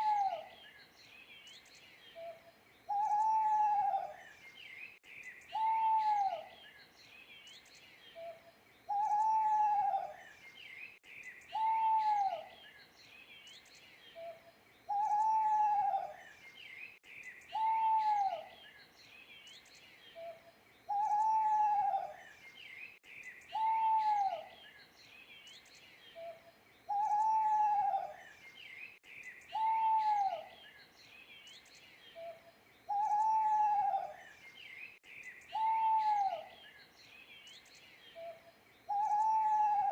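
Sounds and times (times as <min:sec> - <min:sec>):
owl hooting: 0:00.0 - 0:00.5, 0:02.2 - 0:04.2, 0:05.5 - 0:06.5, 0:08.2 - 0:10.2, 0:11.5 - 0:12.5, 0:14.2 - 0:16.2, 0:17.5 - 0:18.5, 0:20.2 - 0:22.2, 0:23.5 - 0:24.5, 0:26.2 - 0:28.2, 0:29.5 - 0:30.6, 0:32.2 - 0:34.2, 0:35.5 - 0:36.6, 0:38.2 - 0:39.9
small birds chirping: 0:00.0 - 0:39.9.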